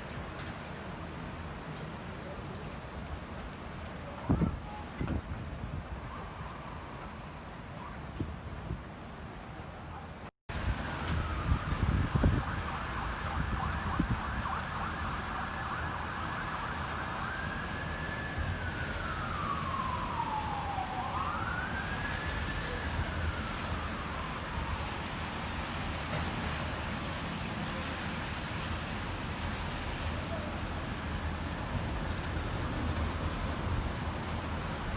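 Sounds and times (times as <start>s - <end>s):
wind rumble on microphone: 4.0s - 7.1s, 10.5s - 15.8s, 27.8s - 34.9s
emergency siren wailing: 10.5s - 26.9s, 29.3s - 34.9s.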